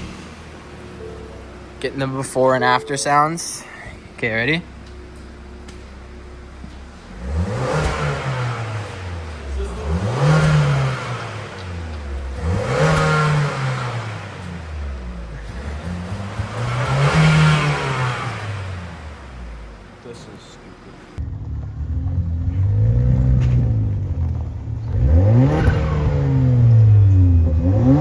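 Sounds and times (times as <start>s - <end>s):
truck engine revving: 0.0s - 3.2s, 4.0s - 28.0s.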